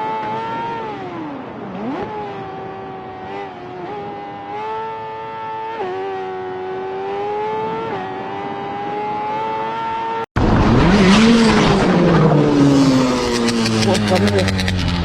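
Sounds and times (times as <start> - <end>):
motorcycle engine at high revs: 0.0 - 15.0
engine revving up and down: 5.5 - 15.0
rough rushing noise: 10.4 - 15.0.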